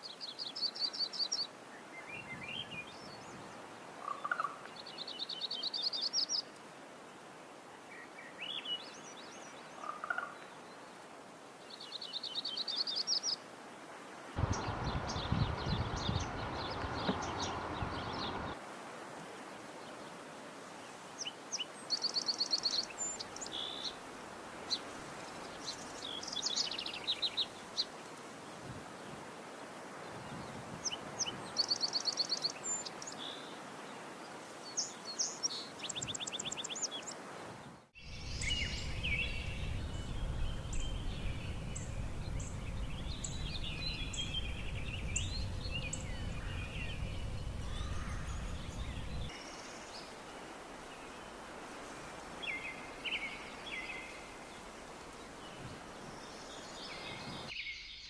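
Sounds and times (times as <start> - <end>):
low rumble: 14.4 - 18.6, 38.1 - 49.3
warbler trills and chips: 38.0 - 49.4.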